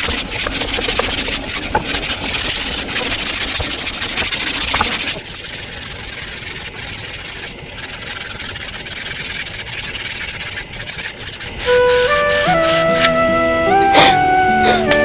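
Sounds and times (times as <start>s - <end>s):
rough rubbing strokes: 0.0s - 13.9s.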